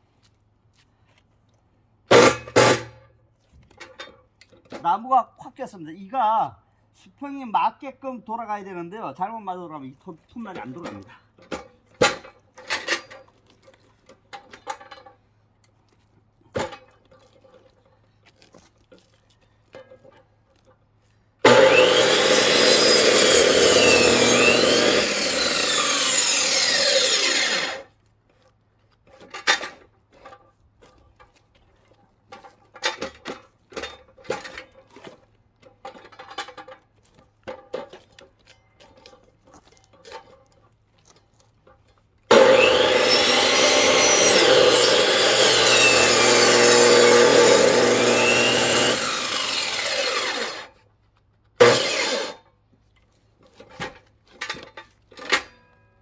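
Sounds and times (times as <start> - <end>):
power saw cutting firewood: 2.1 - 3.0, 9.5 - 13.2, 21.4 - 27.9, 42.3 - 50.8, 51.6 - 52.5.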